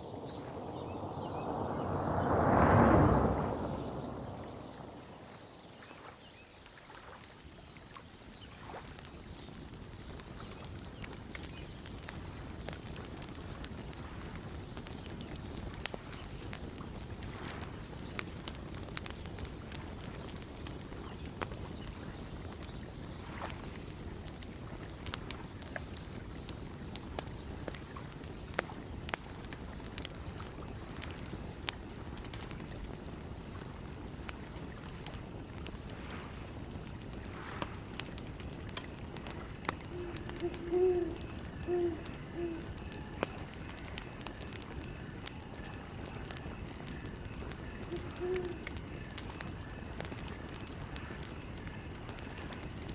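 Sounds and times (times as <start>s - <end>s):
campfire crackling and popping: 0.0s - 52.9s
wind: 0.0s - 52.9s
lake water lapping: 3.8s - 12.4s, 13.4s - 18.7s, 30.3s - 44.0s
lapping water: 39.3s - 42.7s.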